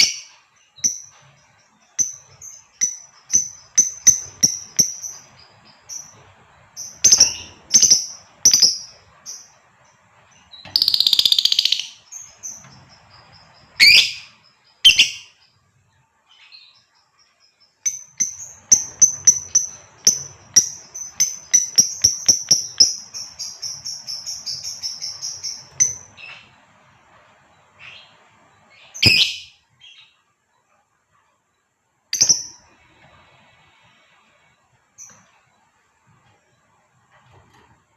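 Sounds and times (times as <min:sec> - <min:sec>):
lovebird chirping and screeching: 0:06.8 - 0:08.9, 0:10.7 - 0:12.6, 0:13.7 - 0:15.4, 0:28.8 - 0:30.1.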